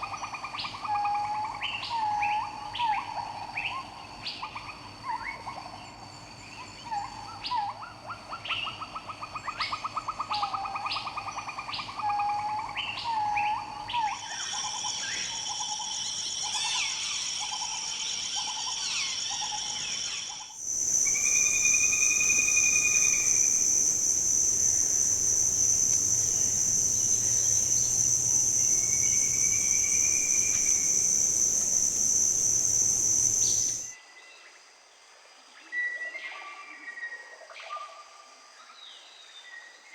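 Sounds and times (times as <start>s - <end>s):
high-pitched insect drone: 14.2s - 33.9s
bird calls and whistles: 20.7s - 33.9s
bird rapid trill: 20.7s - 33.9s.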